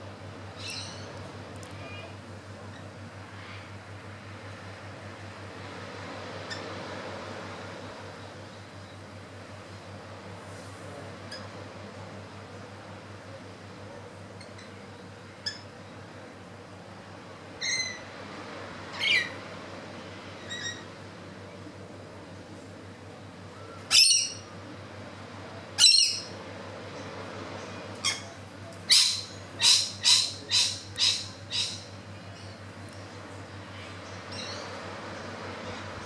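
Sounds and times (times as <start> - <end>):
faint low hum: 0.0 - 36.0
bird harsh calls: 25.8 - 26.4, 28.0 - 32.6.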